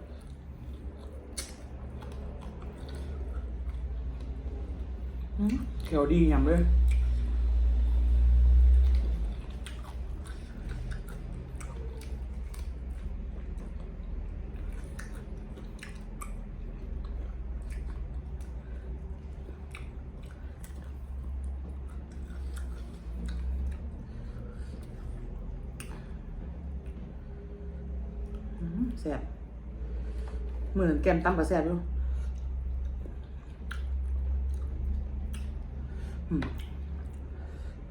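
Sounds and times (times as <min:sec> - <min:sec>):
person chewing food: 0:00.0 - 0:05.9, 0:06.7 - 0:28.7, 0:32.0 - 0:37.9
low hum: 0:00.0 - 0:37.9
mouth clicks and smacks: 0:00.1 - 0:04.6, 0:08.8 - 0:23.9, 0:24.6 - 0:26.2, 0:32.7 - 0:37.3.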